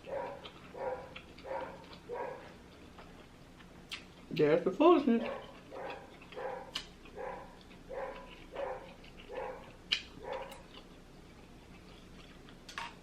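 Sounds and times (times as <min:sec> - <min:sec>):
dog barking: 0:00.0 - 0:02.5, 0:05.2 - 0:10.6.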